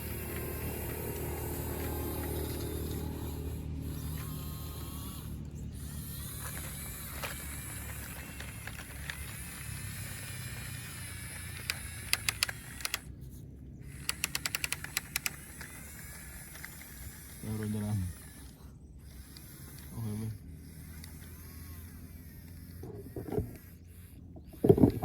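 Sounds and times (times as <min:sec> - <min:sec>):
small geared motor humming: 0:00.0 - 0:25.0
sharp clicks: 0:11.4 - 0:13.1, 0:13.9 - 0:15.8.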